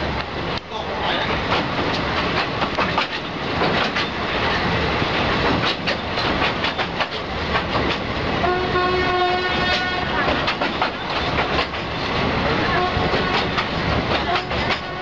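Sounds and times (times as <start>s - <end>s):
train rumbling over bridge: 0.0s - 15.0s
wheels clattering over rail joints: 1.0s - 8.3s, 9.4s - 15.0s
locomotive horn chord: 8.4s - 10.3s, 12.6s - 13.5s, 14.3s - 15.0s.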